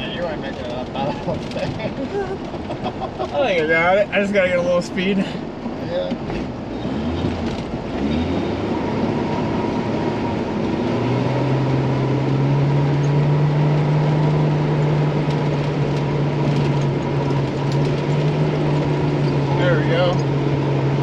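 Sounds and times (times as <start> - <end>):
truck engine revving: 6.0 - 21.0.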